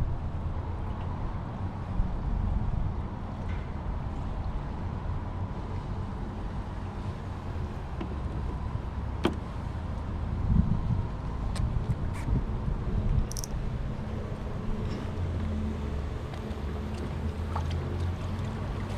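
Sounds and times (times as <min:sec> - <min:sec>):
low rumbling noise: 0:00.0 - 0:18.9
sharp click: 0:13.3 - 0:13.6.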